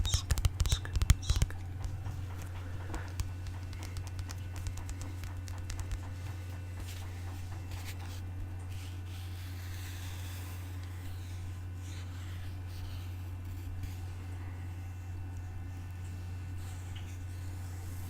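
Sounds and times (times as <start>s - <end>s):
small clicks and scrapes: 0.0s - 14.0s
steady low hum: 0.0s - 18.0s.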